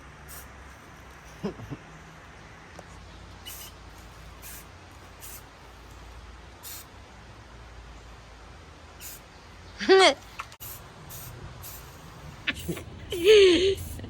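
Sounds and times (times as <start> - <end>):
steady low rumble: 10.6 - 14.0.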